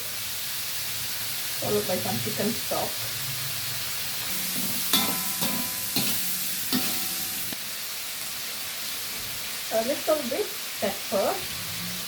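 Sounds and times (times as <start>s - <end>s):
food sizzling in a pan: 0.0s - 12.0s
utensil knocking against pan: 4.4s - 7.4s.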